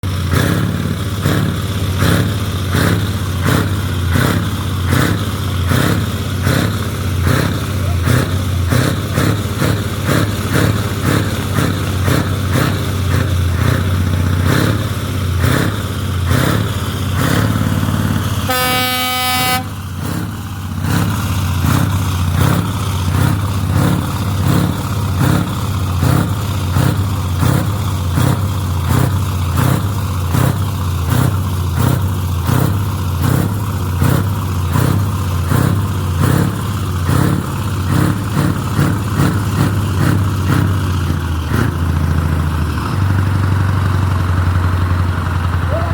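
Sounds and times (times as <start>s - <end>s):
truck engine droning: 0.0s - 45.9s
truck horn blast: 18.4s - 20.3s.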